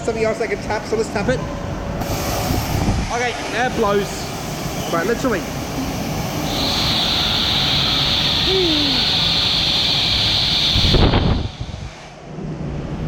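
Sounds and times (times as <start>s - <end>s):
hissing water spray: 2.0s - 12.1s.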